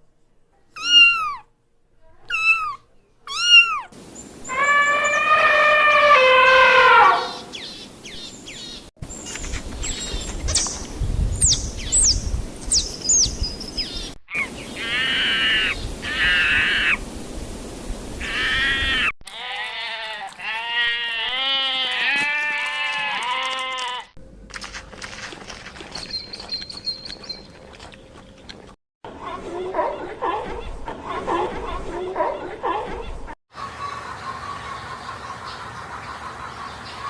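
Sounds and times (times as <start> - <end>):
repeated animal calls: 0.8 - 1.5, 2.3 - 7.8, 14.3 - 17.0
drawn-out animal call: 4.5 - 7.5, 18.2 - 24.1.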